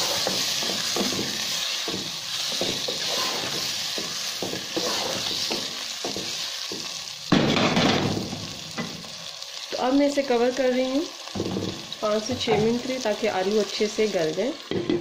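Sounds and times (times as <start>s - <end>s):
wooden spoon scraping pan: 0.0s - 6.8s
potatoes sizzling in oil: 0.0s - 15.0s.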